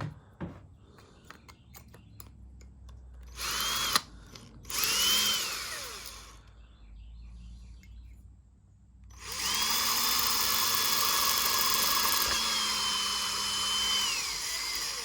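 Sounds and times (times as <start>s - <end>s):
power drill whine: 3.3s - 6.4s, 9.1s - 15.0s.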